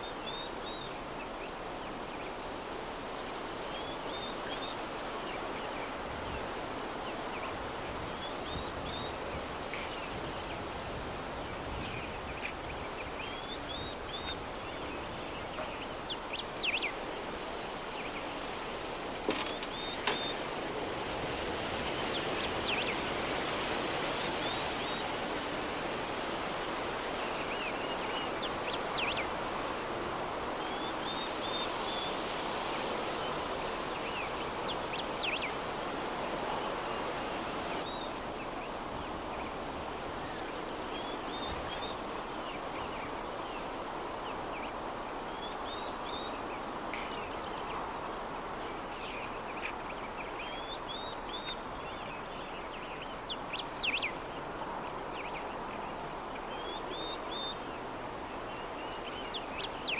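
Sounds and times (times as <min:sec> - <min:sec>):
soft breeze: 0:00.0 - 0:59.9
small birds chirping: 0:11.6 - 0:20.6.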